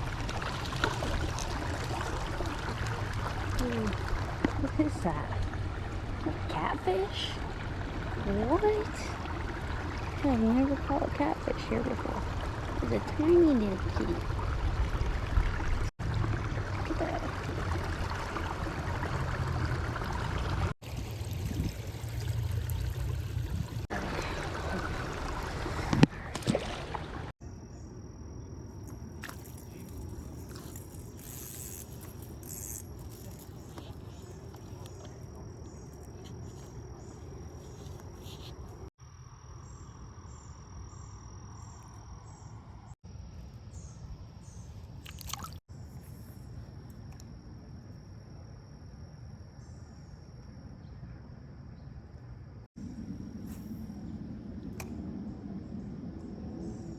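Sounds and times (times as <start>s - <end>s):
creek water trickling: 0.0s - 27.3s, 28.6s - 38.9s, 41.6s - 47.8s
high-pitched insect drone: 28.7s - 38.6s.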